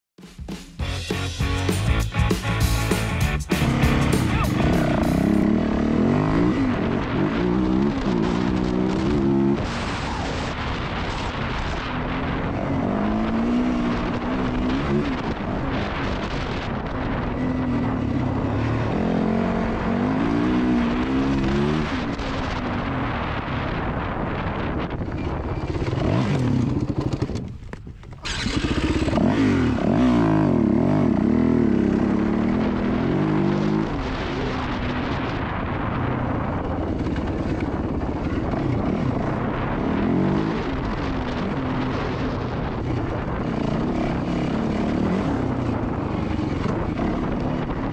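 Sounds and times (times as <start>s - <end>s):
dirt bike engine revving: 0.8s - 35.9s, 36.5s - 47.9s.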